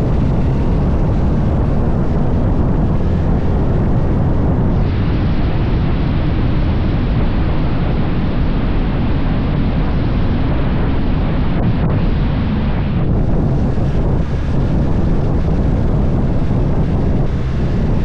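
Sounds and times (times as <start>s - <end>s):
motorcycle engine: 0.0s - 7.2s, 11.9s - 18.0s
road noise: 0.0s - 18.0s
wind roaring over microphone: 0.0s - 18.0s.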